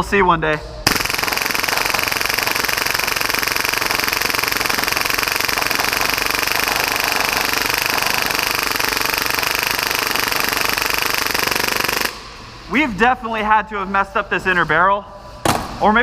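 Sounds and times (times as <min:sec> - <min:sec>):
airsoft pistol rapid fire: 0:00.8 - 0:12.2.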